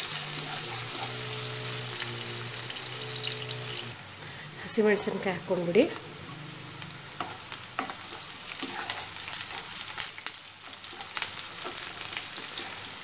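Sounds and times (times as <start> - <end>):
spatula scraping a pan: 0.0 - 2.0, 7.2 - 10.0, 10.6 - 13.0
onions sizzling in hot oil: 0.0 - 13.0.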